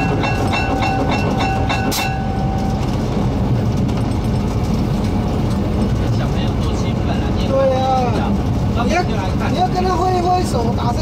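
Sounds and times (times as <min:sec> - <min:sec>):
repeating ringing tone: 0:00.0 - 0:03.0
train rumbling on rails: 0:00.0 - 0:11.0.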